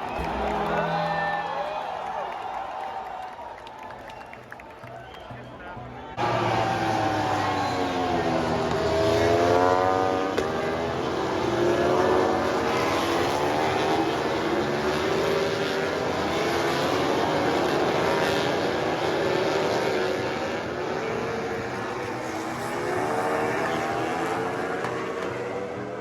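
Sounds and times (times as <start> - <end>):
racing motorcycle engines revving: 6.2 - 26.0.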